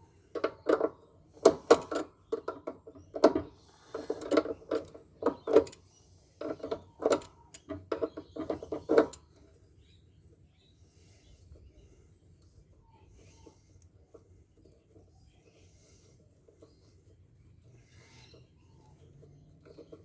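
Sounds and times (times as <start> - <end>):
tools knocking and clanking on metal: 0.3 - 5.8, 6.4 - 9.2.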